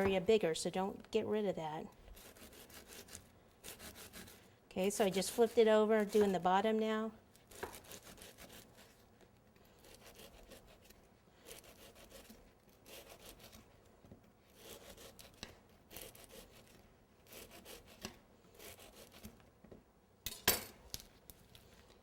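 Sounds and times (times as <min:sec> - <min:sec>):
knife cutting: 0:01.9 - 0:04.4, 0:05.0 - 0:06.4, 0:07.3 - 0:09.0, 0:09.6 - 0:19.5.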